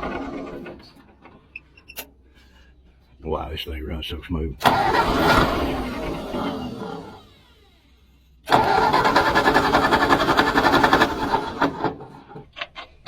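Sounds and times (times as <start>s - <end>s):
old engine running: 4.6s - 7.8s, 8.5s - 12.4s.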